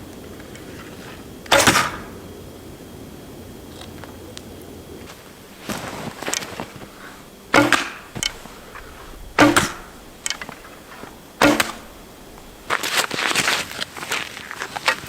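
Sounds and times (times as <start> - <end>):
bow string snapping: 1.5 - 2.2, 6.2 - 12.8
rustling footsteps: 5.0 - 15.0.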